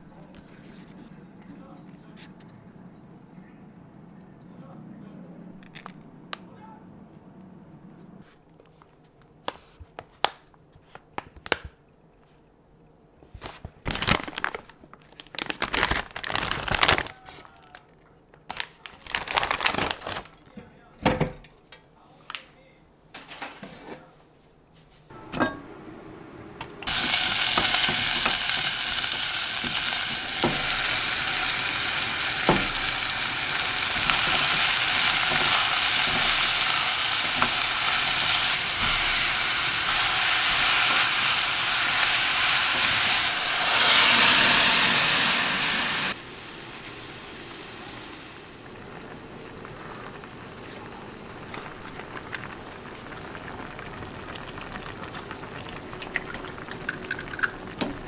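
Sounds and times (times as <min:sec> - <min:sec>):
vegetables sizzling in a pot: 0:26.7 - 0:58.0
broth bubbling: 0:48.5 - 0:58.0.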